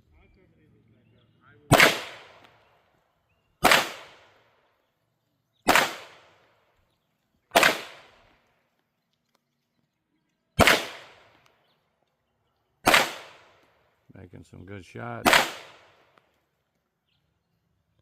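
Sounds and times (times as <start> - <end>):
pistol shots with echo: 1.7 - 2.7, 3.6 - 4.6, 5.6 - 6.6, 7.5 - 8.3, 10.6 - 11.4, 12.8 - 13.8, 15.2 - 16.2.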